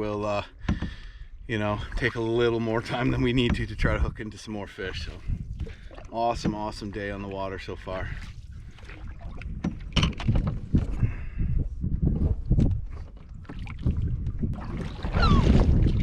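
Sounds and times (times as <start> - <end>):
wind rumbling on microphone: 0.0 - 16.0
canoe paddle strokes: 1.6 - 4.1, 5.0 - 11.2, 12.0 - 16.0.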